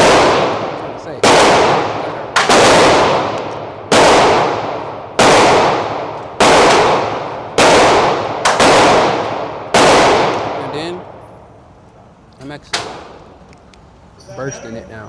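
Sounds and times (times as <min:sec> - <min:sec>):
echoing pistol shots: 0:00.0 - 0:11.2, 0:12.7 - 0:13.4.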